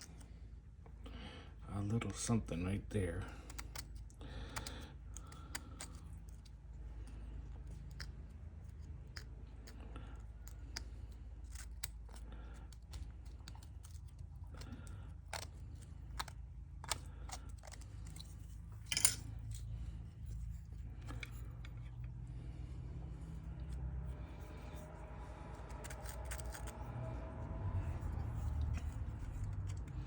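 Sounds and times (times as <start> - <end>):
low hum: 14.2 - 30.0.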